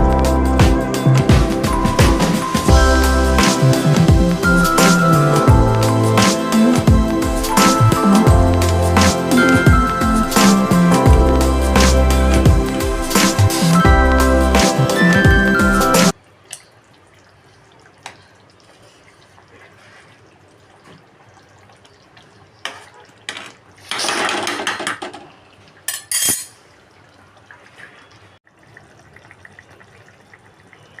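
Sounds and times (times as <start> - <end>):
dishes and cutlery clinking: 22.7 - 25.2, 25.9 - 26.6.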